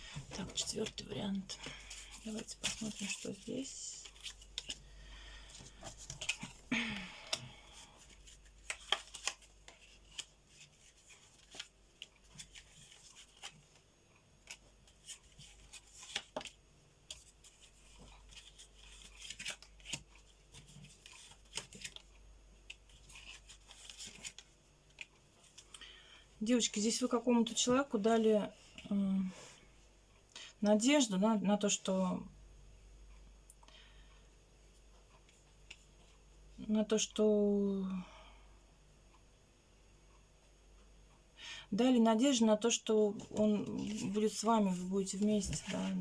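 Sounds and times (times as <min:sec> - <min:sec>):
cards rustling: 0:00.0 - 0:13.8, 0:14.4 - 0:22.1, 0:22.7 - 0:25.8, 0:43.2 - 0:46.0
cards clicking and tapping: 0:08.4 - 0:10.3.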